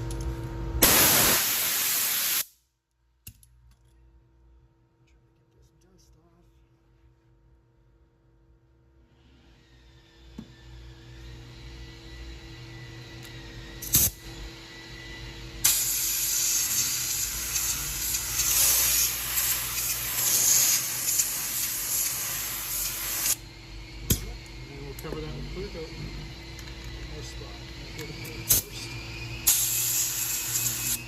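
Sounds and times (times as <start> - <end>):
spray paint hissing: 0.8 - 2.5, 15.6 - 23.4, 29.4 - 31.0.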